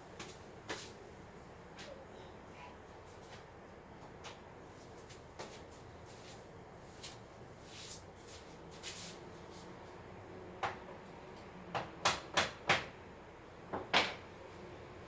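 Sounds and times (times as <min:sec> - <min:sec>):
soft scrapes of crib parts: 0:04.8 - 0:10.0
sharp knocks of crib parts: 0:10.6 - 0:10.9, 0:11.7 - 0:13.0, 0:13.7 - 0:14.2.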